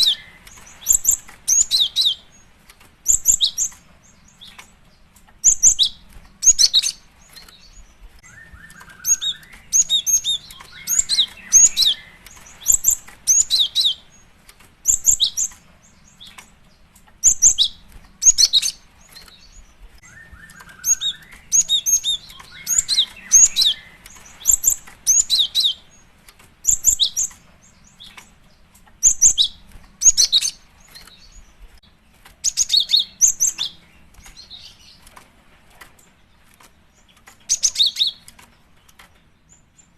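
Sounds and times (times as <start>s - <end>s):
bird high-pitched chip notes: 5.5s - 14.2s, 17.2s - 26.0s.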